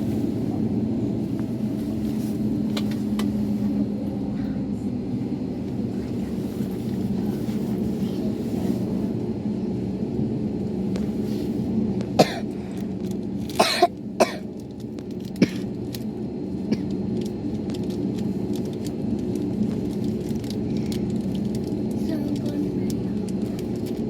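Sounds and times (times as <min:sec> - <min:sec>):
person coughing: 0:12.2 - 0:12.6, 0:13.6 - 0:14.4, 0:15.4 - 0:15.7.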